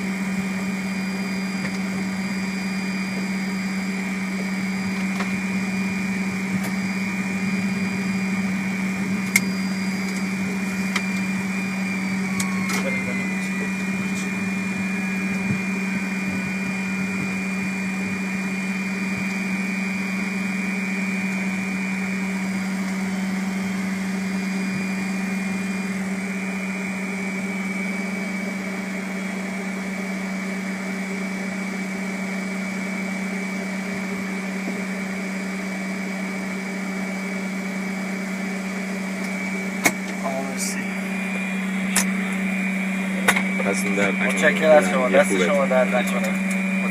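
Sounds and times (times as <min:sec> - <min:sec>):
cockpit drone and hum: 0:00.0 - 0:46.9
tone sliding down in pitch: 0:12.0 - 0:14.4.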